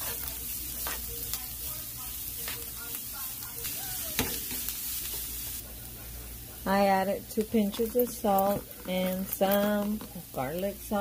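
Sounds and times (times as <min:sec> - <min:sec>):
spatula scraping a pan: 0:00.0 - 0:01.4
food sizzling in oil: 0:00.0 - 0:11.0.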